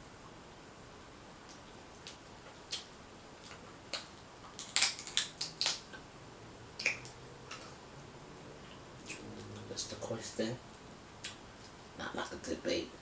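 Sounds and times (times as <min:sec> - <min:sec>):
crab shells cracking: 0:02.0 - 0:06.0.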